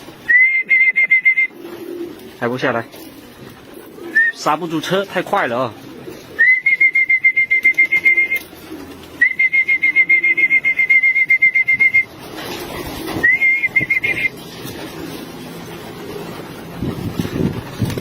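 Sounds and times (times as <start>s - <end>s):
trilled whistle: 0.3s - 1.5s, 6.4s - 8.4s, 9.2s - 12.1s, 13.2s - 14.3s.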